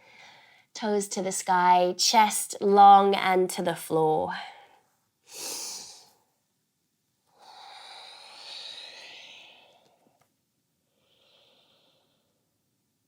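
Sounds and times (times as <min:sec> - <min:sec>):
person breathing close to microphone: 0:07.3 - 0:10.2, 0:10.8 - 0:12.4.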